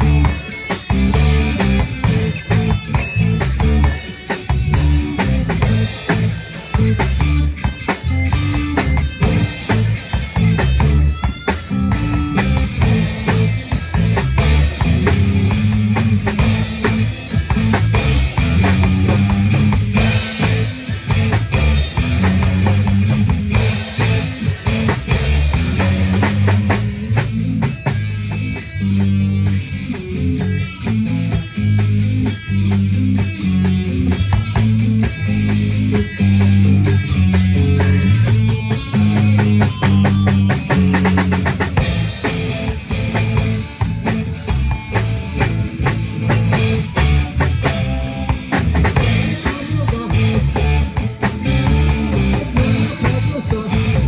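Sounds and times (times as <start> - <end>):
drum kit hits: 0.0 - 29.4, 35.9 - 54.0
bass line: 0.0 - 54.0
electric guitar: 0.0 - 54.0.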